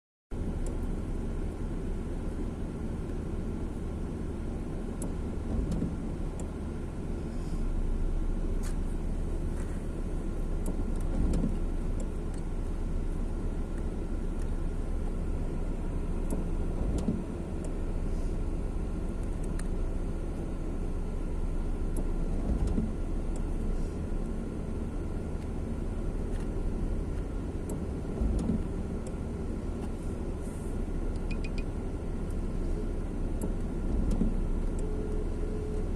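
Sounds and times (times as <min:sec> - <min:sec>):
road traffic: 0:00.3 - 0:35.9.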